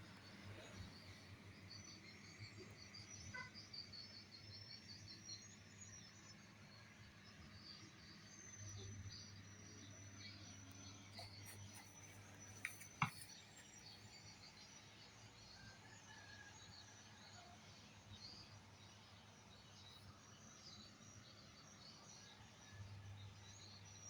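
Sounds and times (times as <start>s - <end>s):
faint high chirping: 8.5s - 15.0s.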